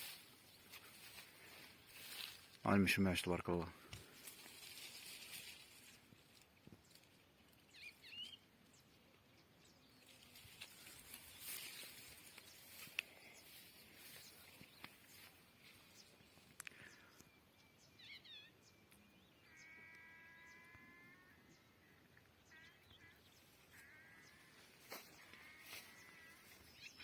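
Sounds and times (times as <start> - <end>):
small birds chirping: 0.0 - 27.0
farm animal bleating: 19.4 - 26.9.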